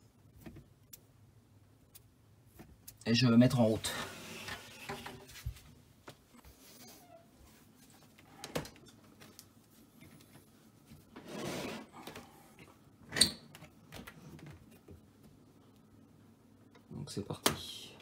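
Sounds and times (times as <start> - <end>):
soft rustle: 3.7 - 8.2.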